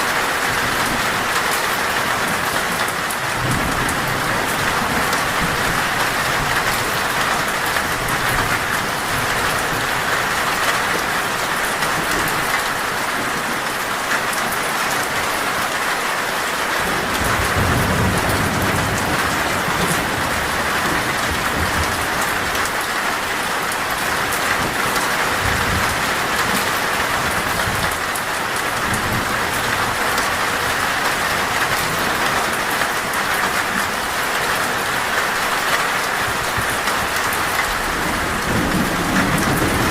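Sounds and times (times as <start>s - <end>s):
heavy rain on a metal roof: 0.0s - 39.9s
thunder rolling: 36.6s - 39.9s.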